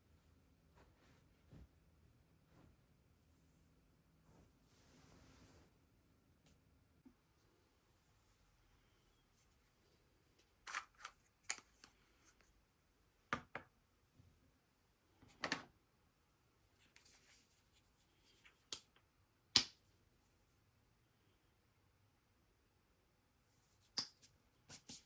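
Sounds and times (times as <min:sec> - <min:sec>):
soft rustling: 0:00.0 - 0:05.9.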